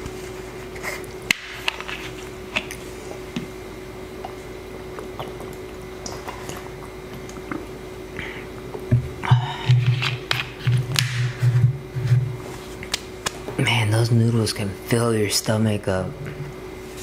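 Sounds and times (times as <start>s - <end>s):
faint steady hum: 0.0s - 17.0s
mouth clicks and smacks chewing: 4.2s - 7.7s.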